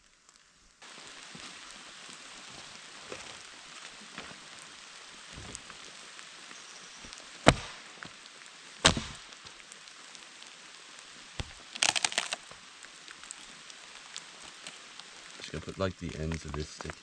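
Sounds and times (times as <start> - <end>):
firewood cracking as broken: 0.0 - 17.0
light rain pattering: 0.0 - 17.0
small ticks: 11.4 - 15.4.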